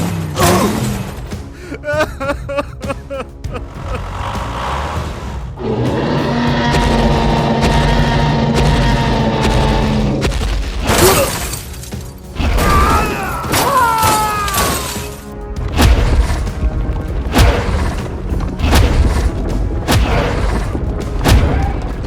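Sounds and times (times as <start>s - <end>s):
background music: 0.0s - 22.0s
boom and crash effects: 15.6s - 22.0s.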